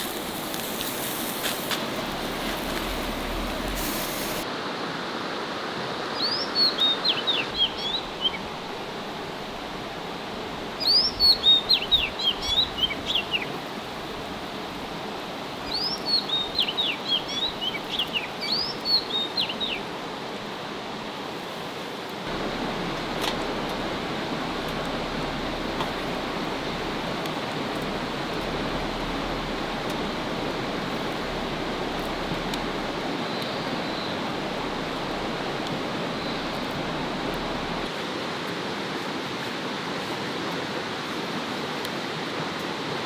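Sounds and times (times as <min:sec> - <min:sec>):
songbird chirping: 0:00.0 - 0:04.4, 0:06.1 - 0:14.1, 0:15.6 - 0:20.0, 0:22.3 - 0:37.9
steady rushing hiss: 0:00.0 - 0:06.0, 0:07.4 - 0:43.0.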